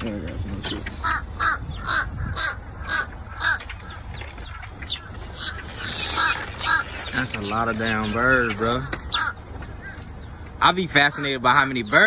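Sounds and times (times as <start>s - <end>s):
flock of birds calling: 0.0s - 12.0s.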